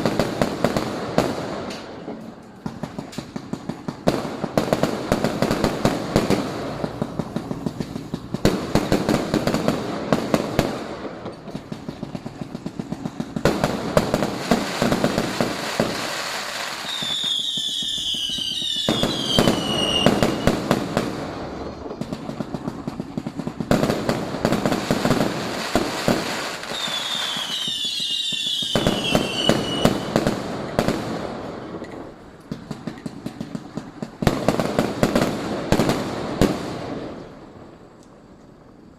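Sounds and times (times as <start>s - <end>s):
fireworks cracking and banging: 0.0s - 38.9s
high falling firework whistle: 16.4s - 20.6s, 26.5s - 30.2s.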